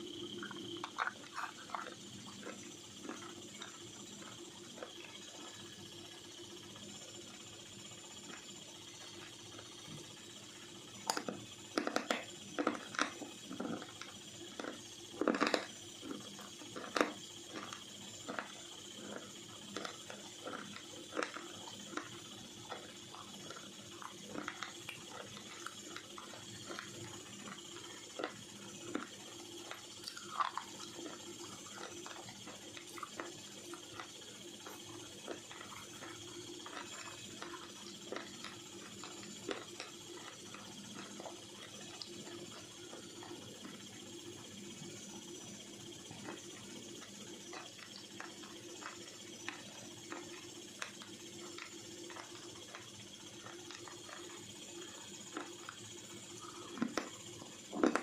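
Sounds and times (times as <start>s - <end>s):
faint hum: 0.0s - 58.0s
chalky pencils crunching in teeth: 0.4s - 4.9s, 14.6s - 42.4s.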